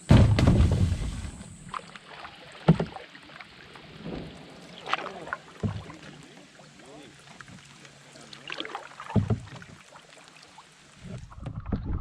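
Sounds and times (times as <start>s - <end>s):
paddle knocking canoe hull: 0.0s - 1.8s, 2.6s - 3.1s, 4.8s - 6.4s, 7.4s - 9.9s.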